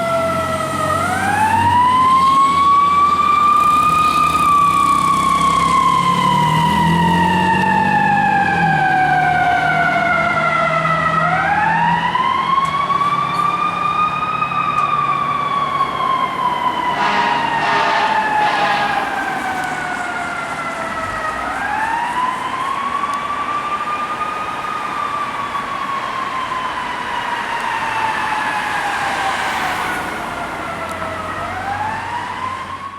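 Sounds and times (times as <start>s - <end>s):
short siren bursts: 0.0s - 24.4s
fire truck engine: 0.0s - 32.9s
fire truck siren wailing: 0.0s - 32.9s.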